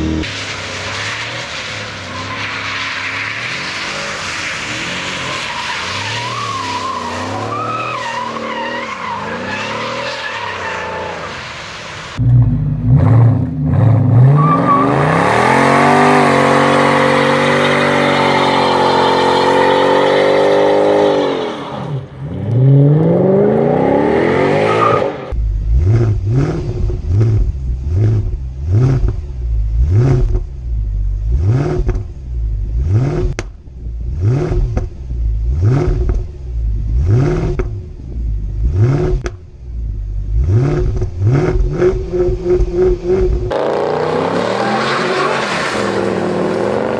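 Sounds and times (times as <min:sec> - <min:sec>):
car engine revving: 0:12.2 - 0:46.9.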